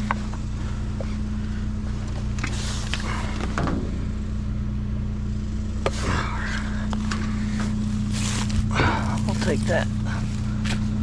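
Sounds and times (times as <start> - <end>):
vehicle engine idling: 0.0 - 11.0
junk shifted in a dumpster: 2.0 - 4.2, 5.9 - 11.0.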